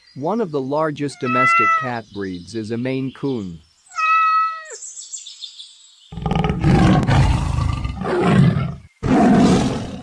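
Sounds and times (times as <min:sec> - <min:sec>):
big cat roaring: 0:06.2 - 0:10.0.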